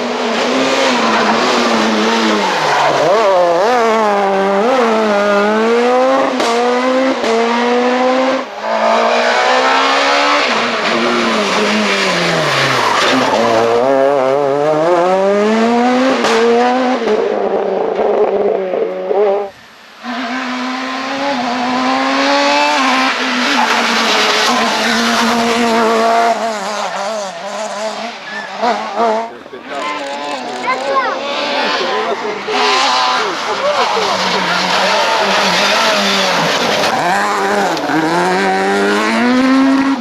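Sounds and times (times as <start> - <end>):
rally car engine at full throttle: 0.0 - 40.0
sharp cracks on gear shifts: 28.9 - 33.5.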